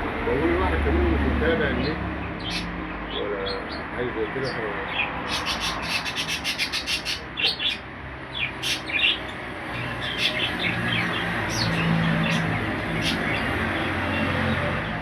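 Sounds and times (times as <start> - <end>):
small birds chirping: 1.6 - 15.0.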